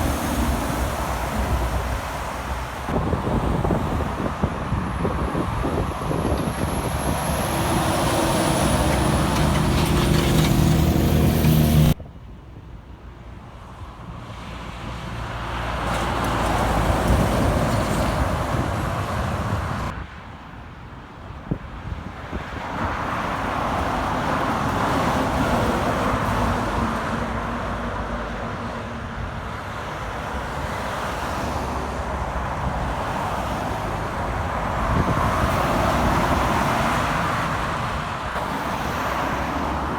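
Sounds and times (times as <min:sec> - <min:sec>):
heavy trucks driving past: 0:00.0 - 0:12.0, 0:23.6 - 0:39.9.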